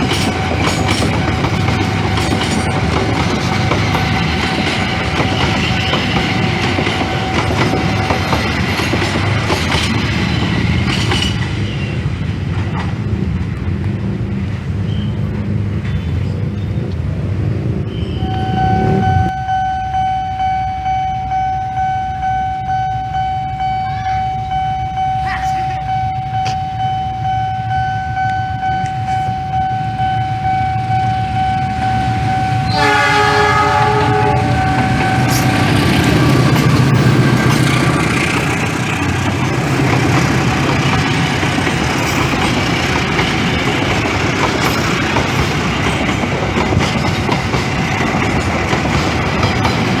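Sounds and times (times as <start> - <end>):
train wheels clicking over rail joints: 0.0 - 14.6, 34.2 - 50.0
train rumble: 0.0 - 50.0
multi-note train horn: 32.6 - 35.9.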